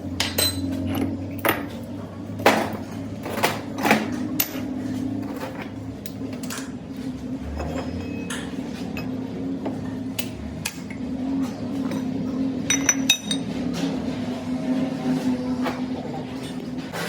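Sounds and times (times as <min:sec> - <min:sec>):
metal tools clinking and knocking: 0:00.2 - 0:01.8, 0:12.7 - 0:13.5.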